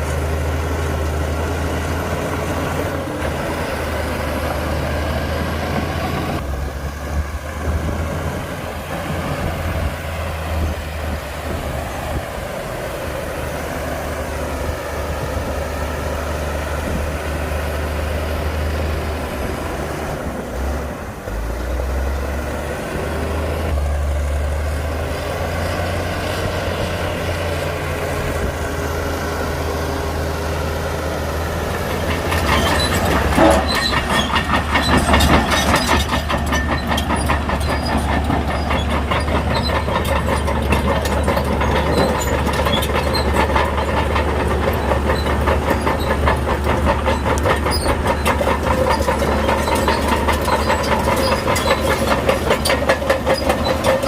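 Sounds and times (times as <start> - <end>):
bulldozer diesel engine rumbling: 0.0 - 54.0
steel tracks rattling: 25.0 - 54.0.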